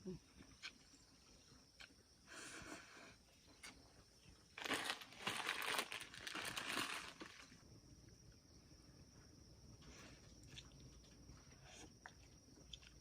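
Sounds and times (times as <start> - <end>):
crinkling and rustling: 4.6 - 7.6.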